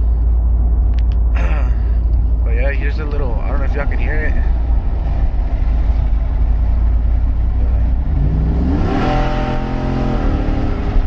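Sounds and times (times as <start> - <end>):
truck engine revving at full throttle: 4.6 - 11.0.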